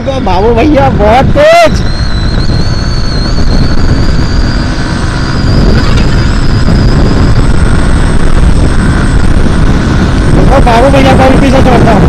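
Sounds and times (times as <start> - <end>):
motorcycle engine revving high: 0.0 - 12.0
wind rumble on microphone: 0.0 - 12.0.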